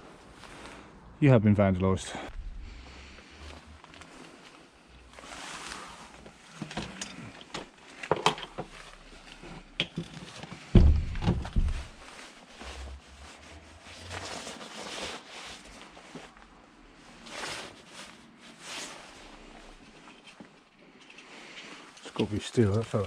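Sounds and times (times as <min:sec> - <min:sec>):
rustling: 0:02.3 - 0:23.0
heavy thump: 0:10.8 - 0:12.0.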